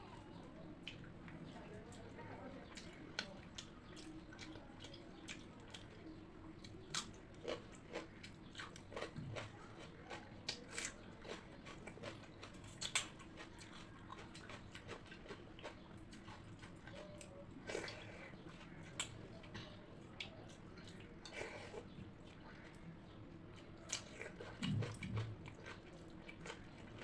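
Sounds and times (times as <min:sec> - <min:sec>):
person chewing crunchy food: 0:06.6 - 0:22.8, 0:23.5 - 0:27.0.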